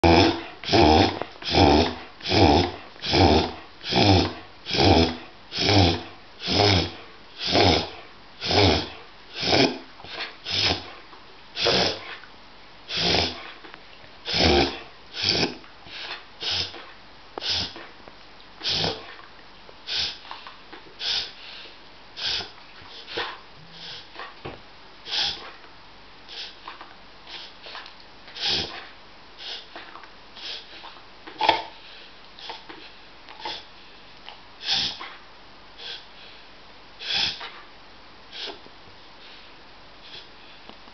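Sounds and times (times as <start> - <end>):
dog reverse sneezing: 0.0 - 11.0, 11.6 - 12.2, 12.9 - 13.5, 14.3 - 17.9, 18.6 - 19.1, 19.9 - 20.4, 21.0 - 21.4, 25.0 - 25.6, 28.4 - 28.8, 34.6 - 35.1, 37.0 - 37.6, 38.3 - 38.6.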